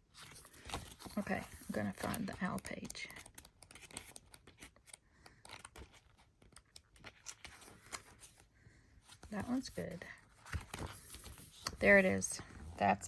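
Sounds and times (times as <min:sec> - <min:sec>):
pages rustling: 0:00.0 - 0:12.2
soft clicks of pages turned: 0:00.2 - 0:08.5, 0:10.4 - 0:12.0.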